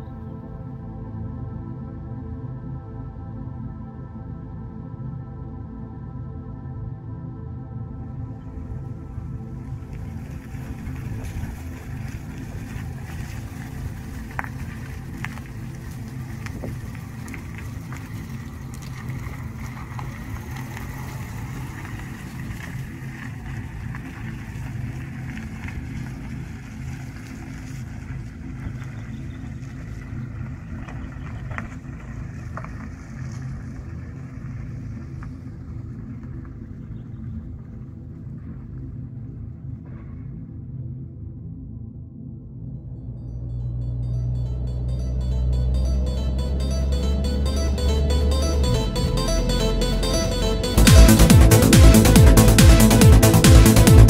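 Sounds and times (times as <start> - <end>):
car engine running: 8.3 - 37.5, 43.6 - 54.0.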